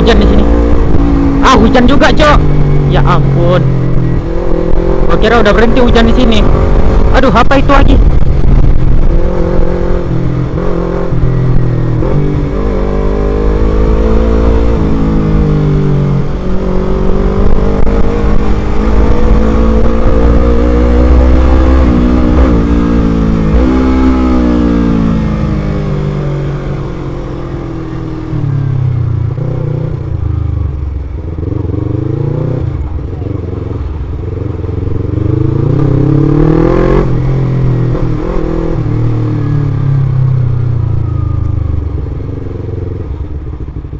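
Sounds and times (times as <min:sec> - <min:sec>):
wind rumble on microphone: 0:00.0 - 0:12.7, 0:13.8 - 0:25.6
motorcycle engine accelerating: 0:00.0 - 0:43.9.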